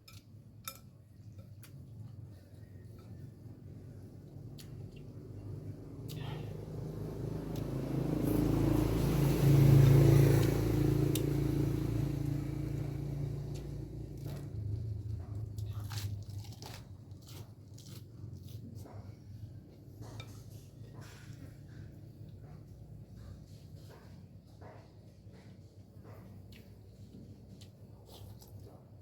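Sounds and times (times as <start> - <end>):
low steady rumble: 0.0 - 29.0
chewing with wet mouth smacks: 4.1 - 19.2.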